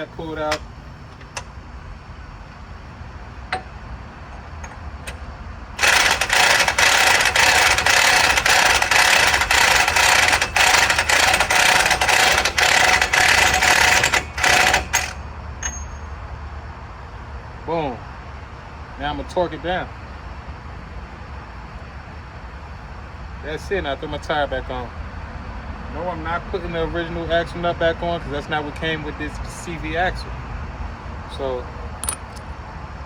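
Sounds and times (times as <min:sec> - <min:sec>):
impact wrench hammering: 0:03.5 - 0:16.1, 0:32.0 - 0:32.5.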